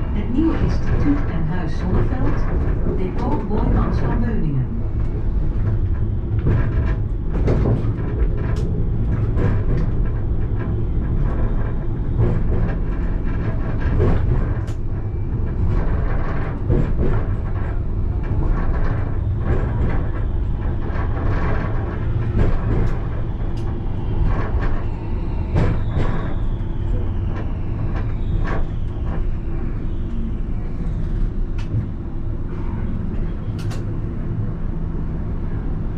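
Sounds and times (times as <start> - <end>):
tram rumbling on rails: 0.0 - 35.9
clicks and knocks of rails: 5.0 - 29.4, 33.5 - 33.9.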